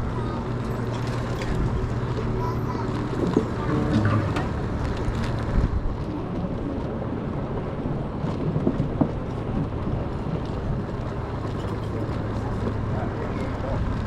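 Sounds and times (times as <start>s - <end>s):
wind buffeting microphone: 0.0s - 14.0s
short knocks: 3.8s - 4.9s.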